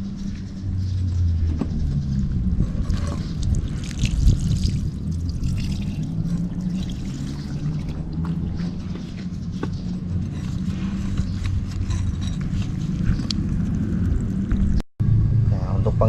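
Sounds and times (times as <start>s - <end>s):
steady low hum: 0.0s - 16.0s
water pouring and splashing: 3.2s - 8.4s.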